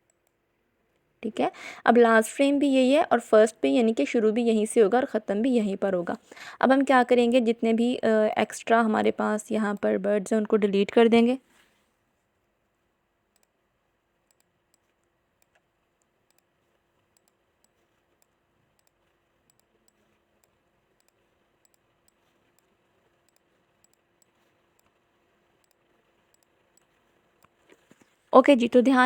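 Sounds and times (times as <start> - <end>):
computer mouse clicks: 0.0 - 1.1, 13.3 - 13.6, 14.2 - 28.2
faint steady hum: 0.0 - 29.0.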